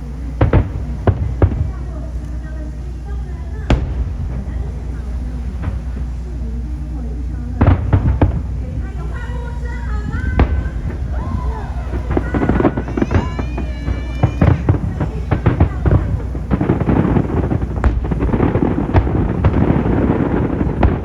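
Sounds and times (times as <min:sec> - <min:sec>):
fireworks booming and crackling: 0:00.0 - 0:21.0.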